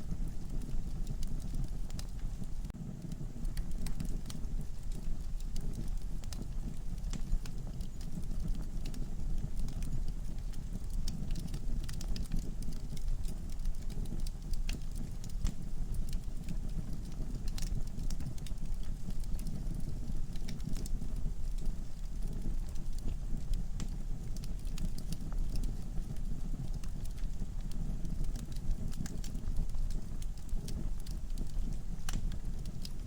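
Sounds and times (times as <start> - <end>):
low rumble of flames: 0.0 - 33.0.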